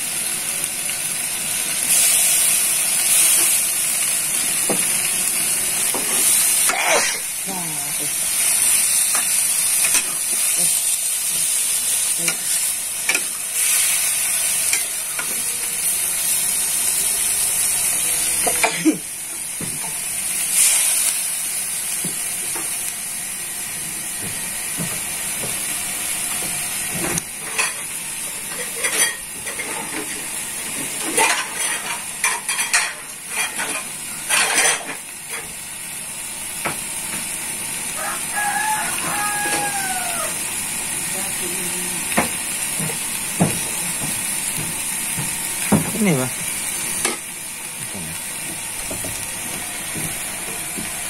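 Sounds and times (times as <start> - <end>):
seafood sizzling in a wok: 0.0 - 51.0.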